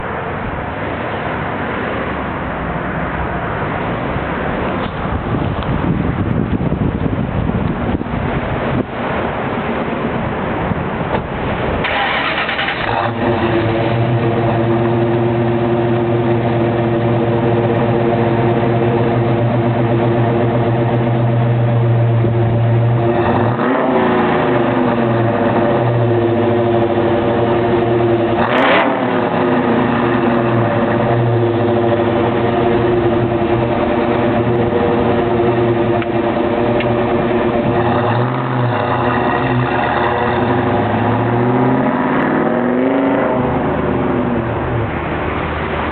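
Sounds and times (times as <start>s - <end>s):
car engine idling: 9.5s - 23.5s, 24.2s - 41.4s
engine revving: 11.8s - 45.9s.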